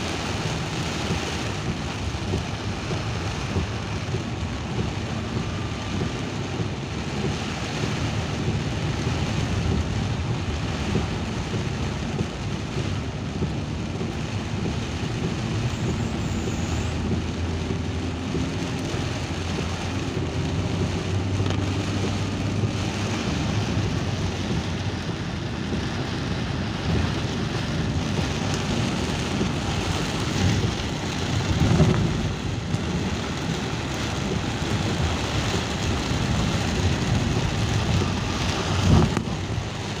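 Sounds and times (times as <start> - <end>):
rain hissing: 0.0 - 40.0
vehicle rumbling: 0.0 - 40.0.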